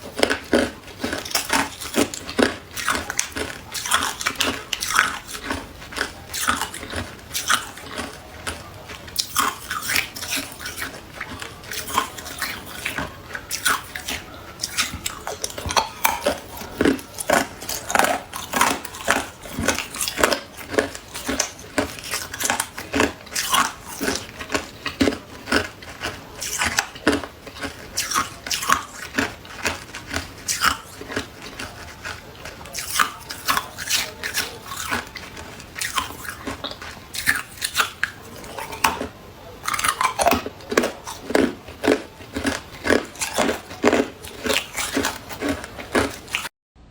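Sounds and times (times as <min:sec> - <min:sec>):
person chewing ice: 0:00.0 - 0:46.5.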